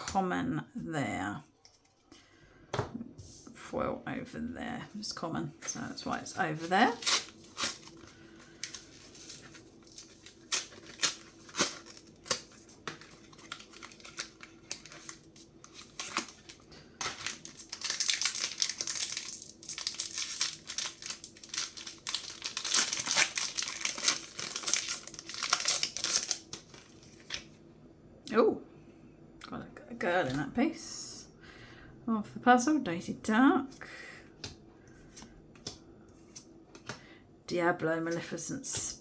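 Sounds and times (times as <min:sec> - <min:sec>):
packaging being torn and crinkled: 0:06.8 - 0:27.5.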